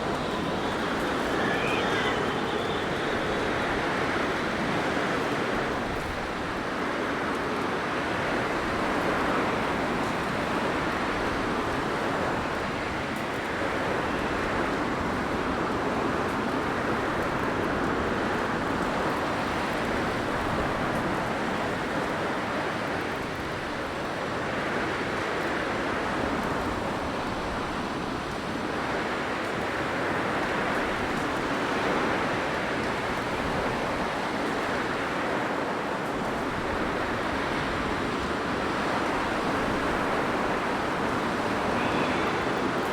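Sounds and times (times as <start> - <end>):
blizzard wind rushing: 0.0 - 16.2.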